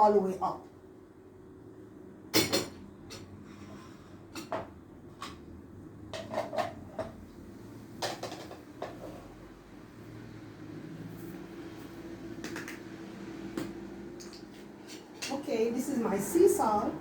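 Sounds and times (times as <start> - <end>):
kitchenware knocks and clinks: 2.4 - 3.4, 6.1 - 7.2, 8.0 - 9.1.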